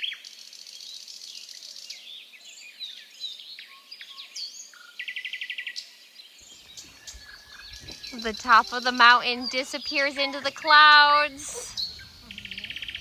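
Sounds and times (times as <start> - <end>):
bird trill: 6.5 - 13.0
birds chirping and whistling: 6.5 - 13.0.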